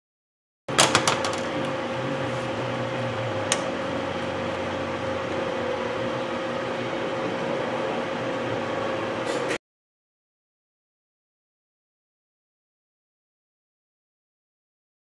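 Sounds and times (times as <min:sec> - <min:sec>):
steady mechanical hum: 0:00.7 - 0:09.6.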